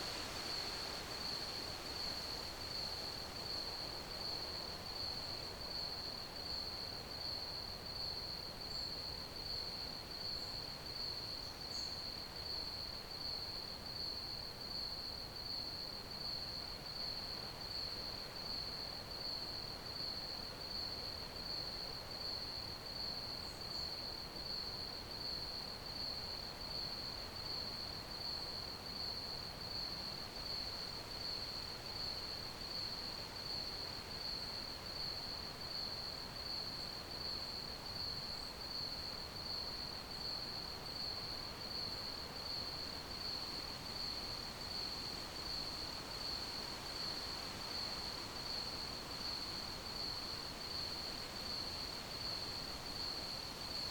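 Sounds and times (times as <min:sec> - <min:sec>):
faint hiss: 0:00.0 - 0:06.3, 0:26.6 - 0:53.9
crickets chirping: 0:16.2 - 0:53.9.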